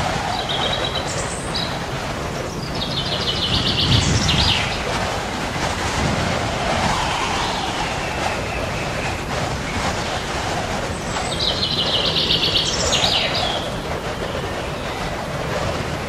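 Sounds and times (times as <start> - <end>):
loud rushing noise: 0.0 - 16.0
high bird chirps and trill: 0.4 - 1.8, 2.5 - 4.9, 11.0 - 15.0.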